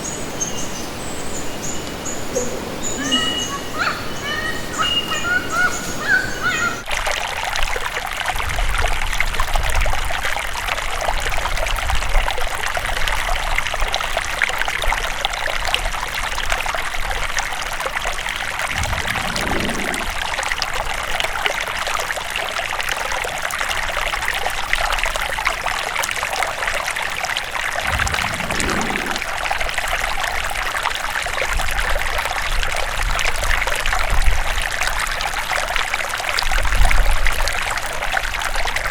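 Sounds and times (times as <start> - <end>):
birds chirping: 0.0 - 6.8, 18.7 - 20.2, 27.9 - 29.3
water trickling and splashing: 0.0 - 38.9
low rumbles: 18.6 - 21.0, 27.8 - 29.6.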